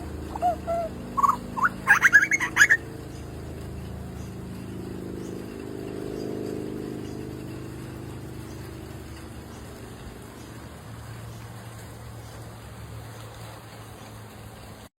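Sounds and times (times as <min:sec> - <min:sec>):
steady low hum: 0:00.0 - 0:13.3
bird squeaky calls: 0:00.2 - 0:02.9.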